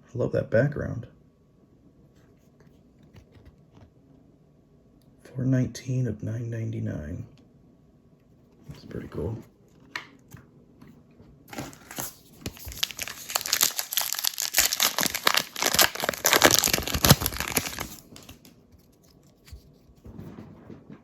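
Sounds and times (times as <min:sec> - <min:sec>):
foil wrapper crinkling: 0:11.5 - 0:19.7
cards being handled: 0:11.5 - 0:19.9.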